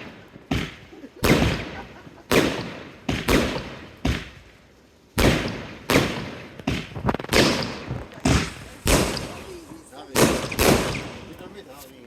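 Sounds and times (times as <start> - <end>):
fireworks bangs with echo: 0.0 - 11.8
small firework cracks: 0.0 - 12.0.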